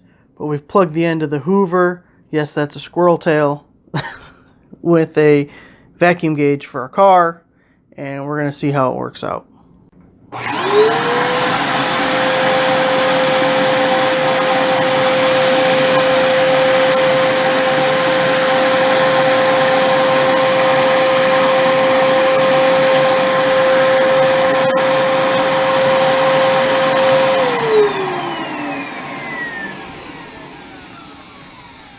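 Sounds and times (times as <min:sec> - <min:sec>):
vacuum cleaner running: 0:10.4 - 0:31.9.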